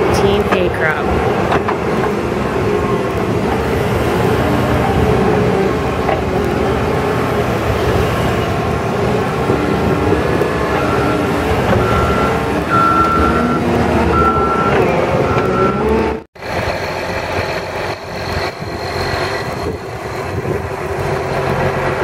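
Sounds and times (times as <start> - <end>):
heavy diesel machinery running: 0.0 - 22.0
reversing alarm beeping: 10.6 - 16.2.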